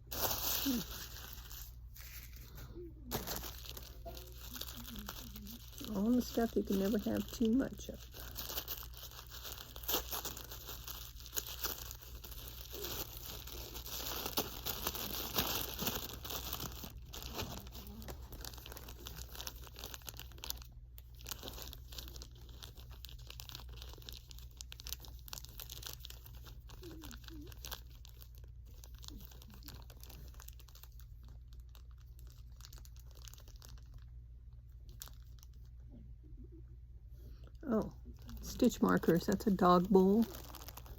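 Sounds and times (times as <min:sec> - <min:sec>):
steady low hum: 0:00.0 - 0:23.2
packaging crinkling and tearing: 0:00.0 - 0:35.8, 0:37.6 - 0:40.9.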